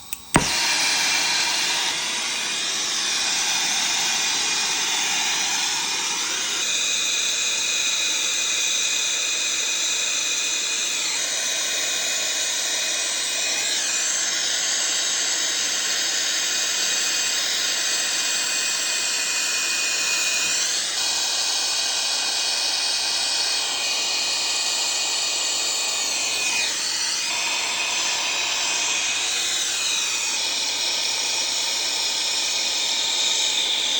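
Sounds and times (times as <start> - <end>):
torch flame hissing: 0.0 - 7.3, 19.7 - 33.9.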